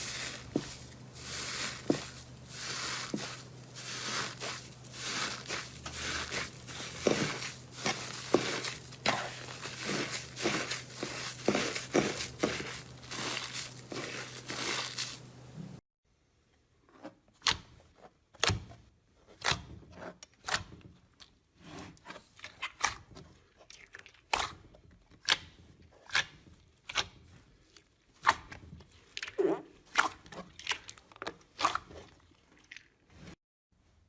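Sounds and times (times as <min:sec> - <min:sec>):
crunchy material crunching by hand: 0:00.0 - 0:15.4.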